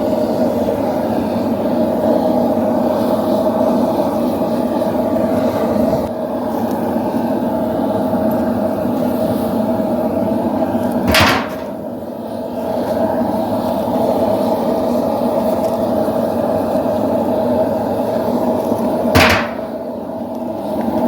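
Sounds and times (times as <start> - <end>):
forge roaring: 9.6 - 12.0, 19.2 - 20.0
loud sharp knock: 11.1 - 11.7, 19.2 - 19.7.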